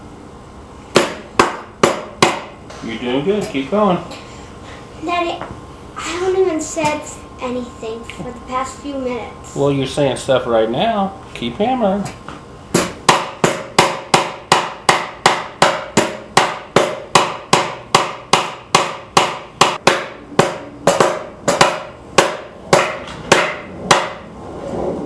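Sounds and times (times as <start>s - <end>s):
hammer nailing wood: 1.0s - 2.5s, 12.8s - 24.2s.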